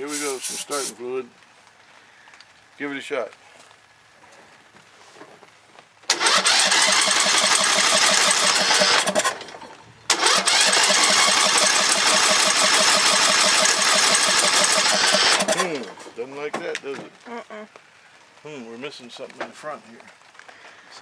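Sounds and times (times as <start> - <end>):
lawn mower engine cranking: 0.0 - 1.0, 6.1 - 16.2.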